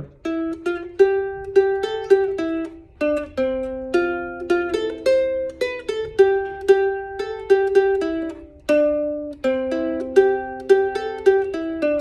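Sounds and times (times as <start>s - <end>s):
ukulele melody plucked: 0.0s - 12.0s.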